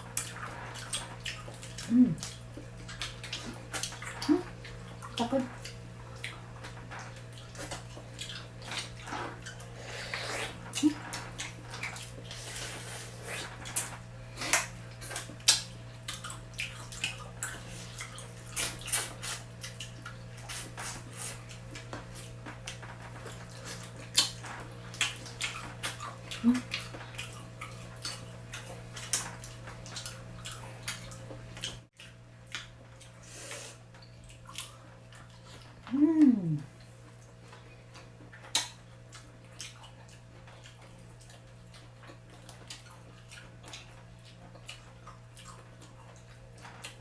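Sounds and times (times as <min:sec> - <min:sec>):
low electrical hum: 0:00.0 - 0:47.0
wet chewing and sucking: 0:00.1 - 0:36.5.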